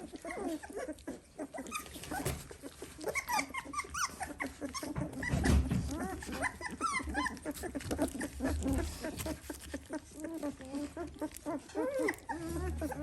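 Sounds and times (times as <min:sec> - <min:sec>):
puppies squeaking and whining: 0:00.0 - 0:13.0.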